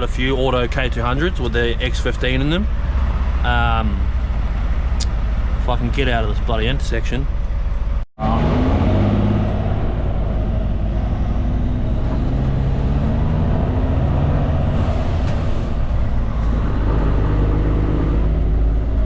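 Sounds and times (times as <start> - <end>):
truck diesel engine drone: 0.0 - 19.0.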